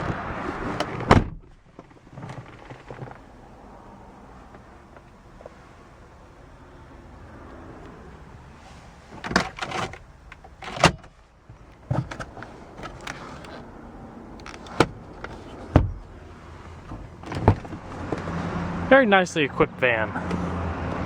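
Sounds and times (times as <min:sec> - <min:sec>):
knocks and clunks on van body: 0:00.0 - 0:03.2, 0:15.6 - 0:16.1, 0:16.8 - 0:18.4.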